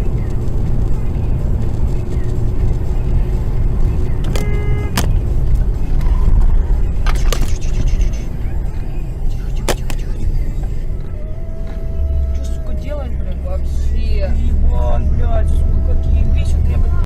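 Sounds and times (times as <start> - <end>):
car road and engine rumble: 0.0 - 17.0
sharp clicks: 4.2 - 5.2
short pitched beep: 4.4 - 5.0.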